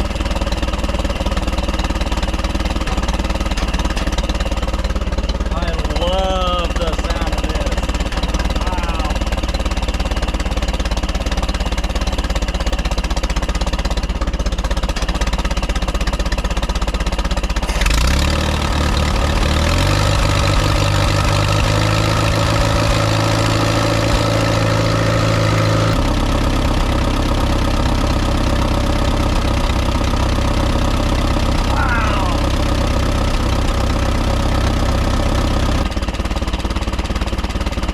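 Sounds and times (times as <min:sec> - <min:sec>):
tractor engine running: 0:00.0 - 0:37.9.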